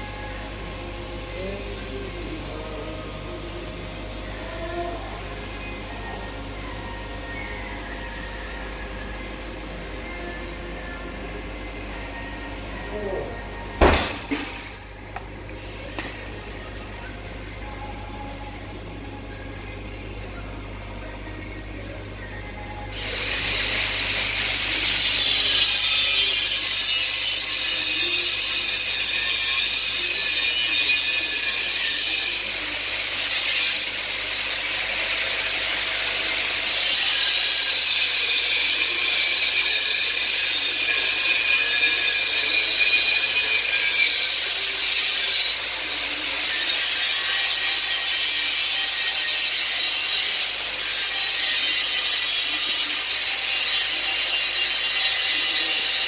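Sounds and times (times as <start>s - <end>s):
welding arc hiss and crackle: 15.4s - 16.6s, 22.9s - 56.0s.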